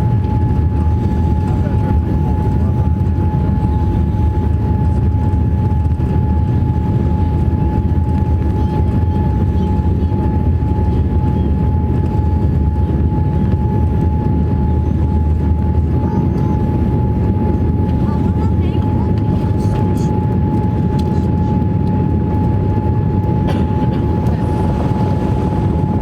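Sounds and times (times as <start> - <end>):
airliner cabin engine rumble: 0.0 - 26.0
thin steady whine: 18.6 - 26.0.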